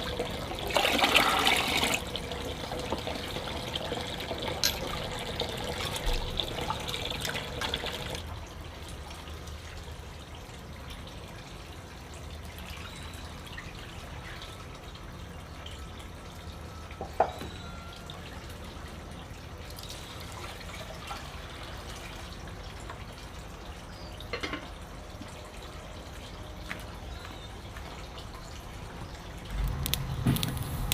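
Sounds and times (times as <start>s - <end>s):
water running: 0.0s - 12.8s
water dripping: 0.0s - 30.9s.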